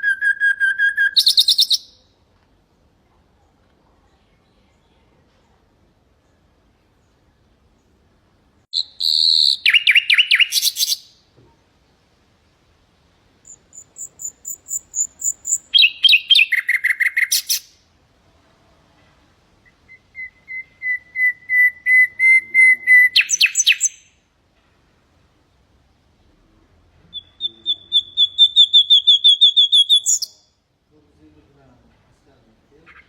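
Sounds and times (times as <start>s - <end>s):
nightingale singing: 0.0s - 2.2s, 8.7s - 11.3s, 13.4s - 17.8s, 19.6s - 24.3s, 27.0s - 30.6s.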